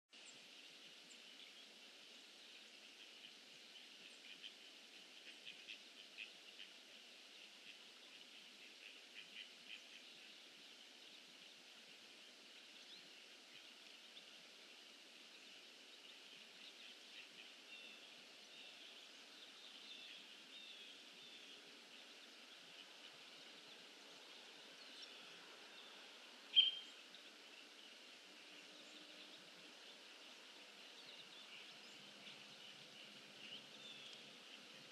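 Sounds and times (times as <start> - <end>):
faint outdoor hiss: 0.1 - 34.9
bird chirps: 26.5 - 27.0.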